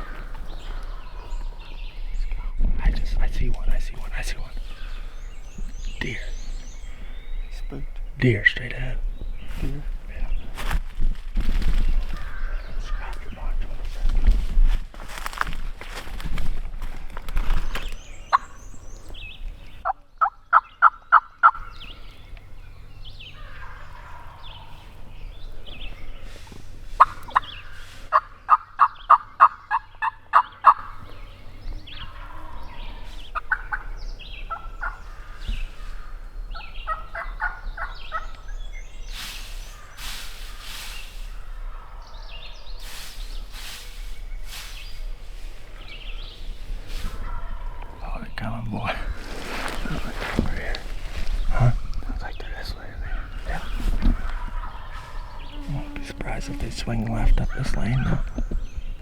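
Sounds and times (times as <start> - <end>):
faint turkey calls: 0.0 - 10.6, 12.0 - 14.4, 17.8 - 59.0
rustling: 9.2 - 19.8, 38.3 - 42.0, 42.7 - 59.0
turkey box call yelping: 27.0 - 31.0, 32.0 - 38.4, 53.1 - 58.3.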